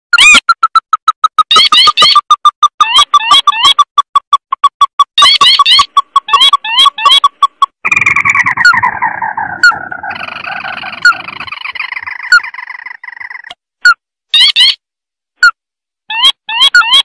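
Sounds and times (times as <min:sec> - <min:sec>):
crake calls: 0:05.1 - 0:13.6.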